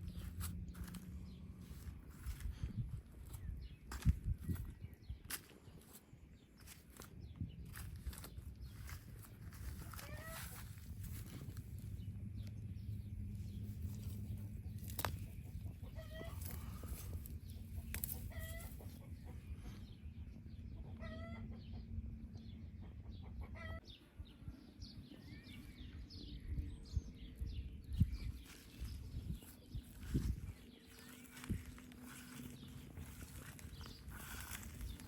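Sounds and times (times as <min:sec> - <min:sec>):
small birds chirping: 0:00.0 - 0:35.0
low steady rumble: 0:07.7 - 0:35.0
hens clucking: 0:15.4 - 0:19.7.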